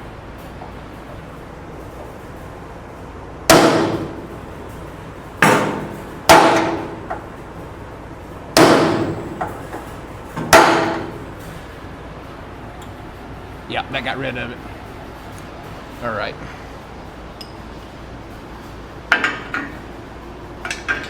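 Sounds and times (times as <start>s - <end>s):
hammer striking steel: 3.5s - 4.4s, 5.4s - 7.3s, 8.6s - 9.8s, 10.4s - 11.5s.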